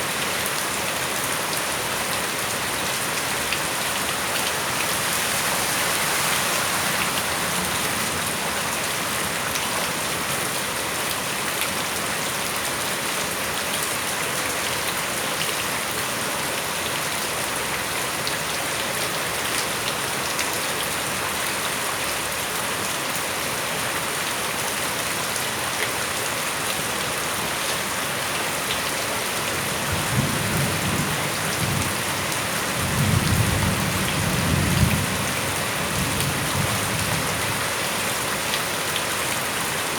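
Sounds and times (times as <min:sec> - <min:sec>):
heavy rain pattering: 0:00.1 - 0:13.8, 0:24.8 - 0:39.9.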